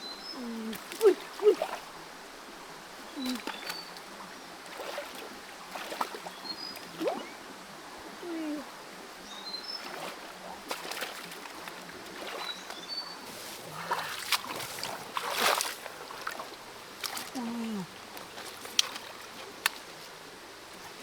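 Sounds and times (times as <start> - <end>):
creek running: 0.0 - 21.0
splashes and knocks in water: 4.6 - 7.2, 9.8 - 21.0.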